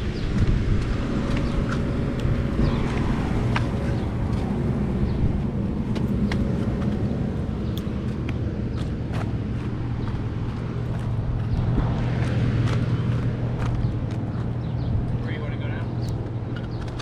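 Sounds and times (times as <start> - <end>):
air conditioner unit humming: 0.0 - 17.0.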